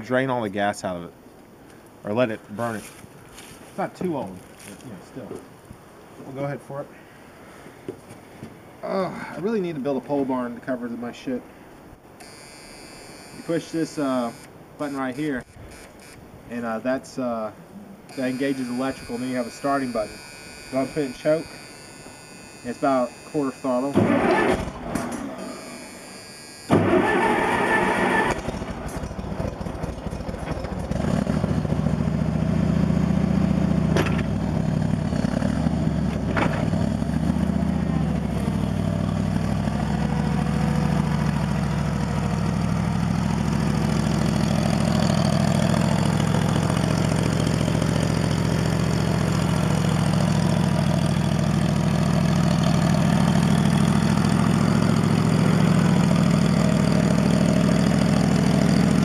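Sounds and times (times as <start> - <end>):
gasoline engine starting and running: 18.1 - 59.0.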